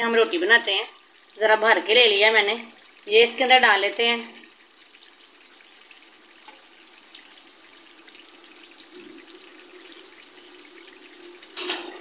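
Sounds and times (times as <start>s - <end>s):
chicken frying in oil: 0.0s - 12.0s.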